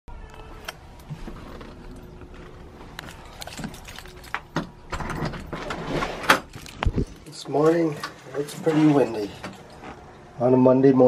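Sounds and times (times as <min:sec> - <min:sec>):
light jingling: 0:01.7 - 0:05.5.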